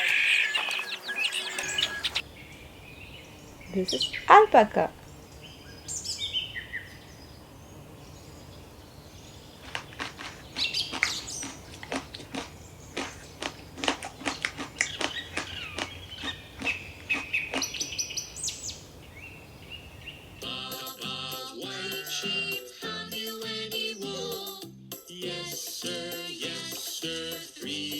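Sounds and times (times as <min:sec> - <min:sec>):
birds chirping: 0:00.0 - 0:20.6
children's music with jingle bells: 0:20.4 - 0:27.9.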